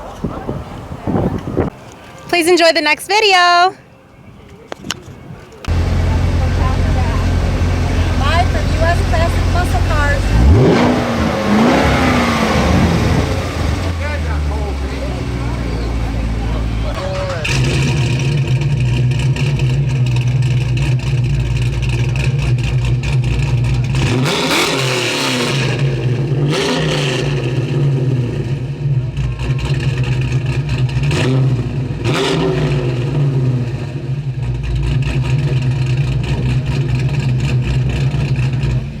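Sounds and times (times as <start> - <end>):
car engine idling and revving: 5.4 - 39.0.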